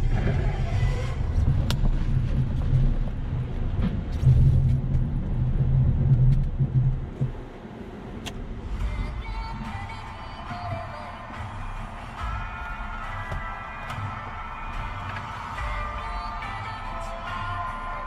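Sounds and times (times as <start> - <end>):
vehicle engine and road rumble: 0.0 - 18.0.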